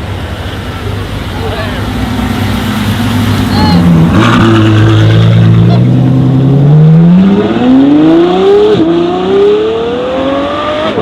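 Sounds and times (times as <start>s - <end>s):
car engine accelerating hard: 1.3s - 11.0s.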